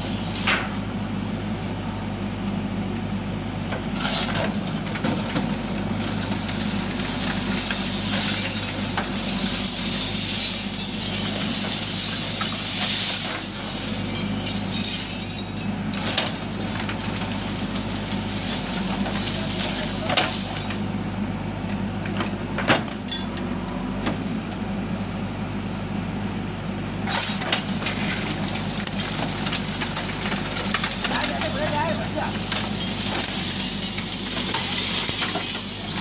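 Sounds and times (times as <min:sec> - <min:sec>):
diesel engine running: 0:00.0 - 0:36.0
earth and stones spilling into truck: 0:04.0 - 0:21.0, 0:27.0 - 0:36.0.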